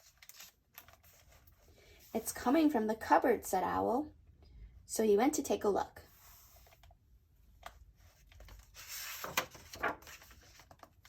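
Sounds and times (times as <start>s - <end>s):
book page turning: 0.0s - 1.6s, 6.1s - 6.9s, 7.6s - 11.0s.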